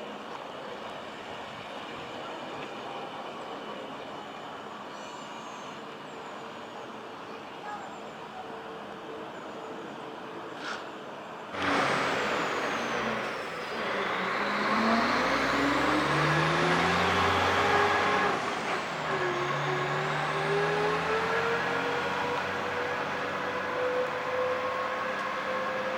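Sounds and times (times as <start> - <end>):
train motors whining: 11.6 - 25.9
train wheels rumbling on track: 11.6 - 25.9.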